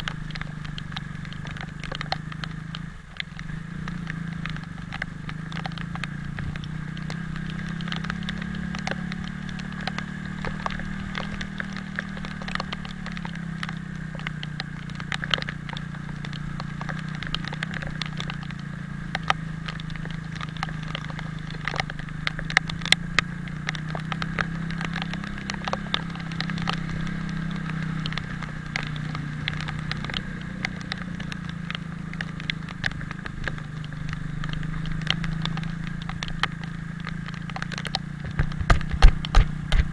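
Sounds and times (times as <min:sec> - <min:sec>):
motorcycle engine running: 0:00.0 - 0:39.9
rain hiss: 0:00.0 - 0:39.9
raindrops ticking: 0:00.0 - 0:39.9.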